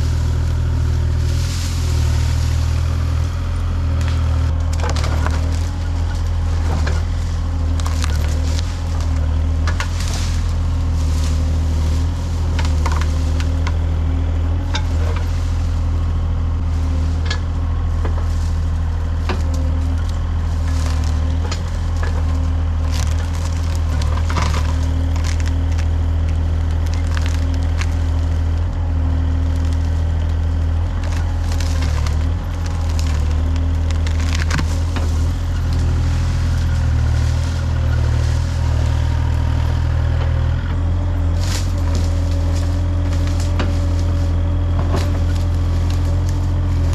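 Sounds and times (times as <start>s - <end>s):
machine engine humming: 0.0s - 46.9s
trees and brush snapping: 0.0s - 46.9s.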